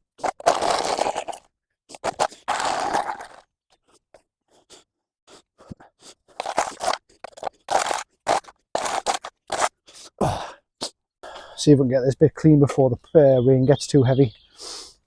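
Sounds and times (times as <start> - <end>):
spade scraping through mud: 1.9 - 3.4, 6.3 - 10.0.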